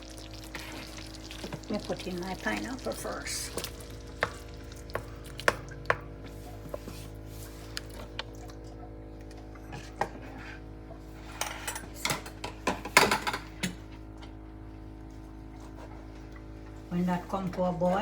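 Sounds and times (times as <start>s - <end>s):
utensils clattering against pot: 11.2s - 13.9s.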